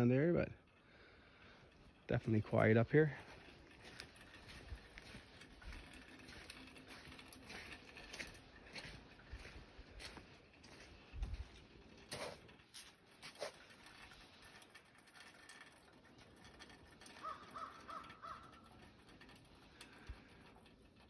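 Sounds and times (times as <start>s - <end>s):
soft footsteps: 3.2s - 13.5s
distant bird calling: 17.0s - 18.8s.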